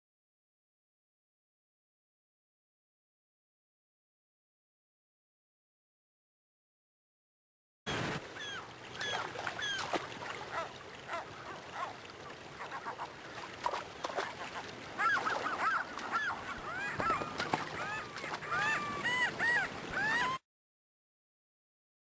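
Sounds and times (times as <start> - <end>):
birds honking calls: 7.9 - 13.2, 14.4 - 20.4.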